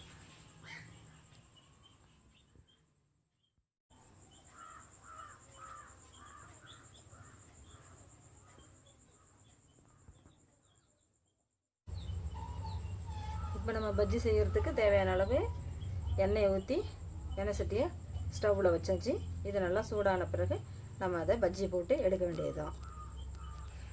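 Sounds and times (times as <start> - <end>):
small birds chirping: 0.0 - 3.0, 4.0 - 23.9
crow cawing: 4.5 - 8.1, 22.6 - 23.9.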